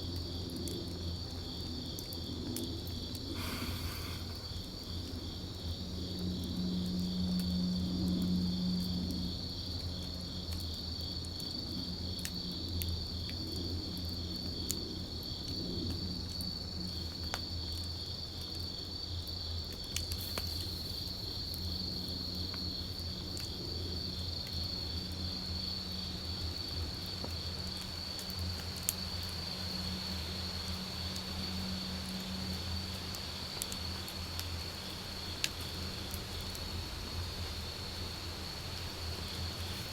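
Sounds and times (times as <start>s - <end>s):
insects chirring: 0.0s - 7.8s, 8.4s - 39.9s
campfire crackling and popping: 0.1s - 8.2s, 16.8s - 18.8s, 19.6s - 25.2s.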